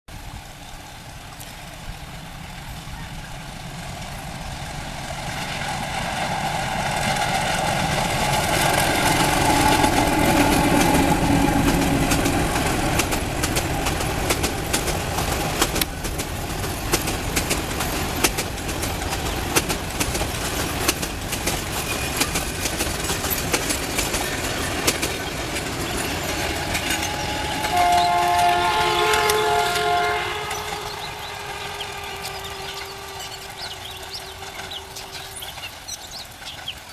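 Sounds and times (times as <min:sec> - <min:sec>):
diesel locomotive hauling train: 0:00.1 - 0:36.9
wheels clicking over rail joints: 0:00.2 - 0:36.9
train horn: 0:08.1 - 0:13.2, 0:25.8 - 0:36.3.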